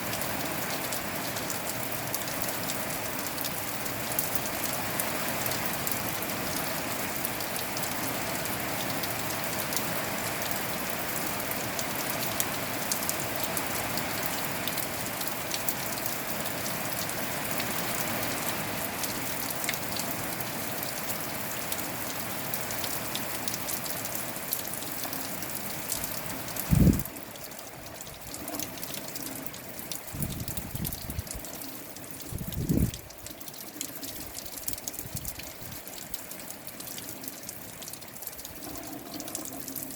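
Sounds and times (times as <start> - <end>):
rain falling: 0.0 - 39.9
wind rumbling on microphone: 26.6 - 27.1, 30.1 - 31.5, 32.3 - 33.1, 35.0 - 35.8.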